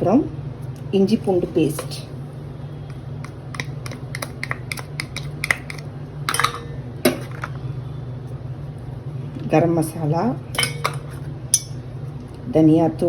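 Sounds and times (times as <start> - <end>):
spoon scraping a bowl: 3.3 - 7.5.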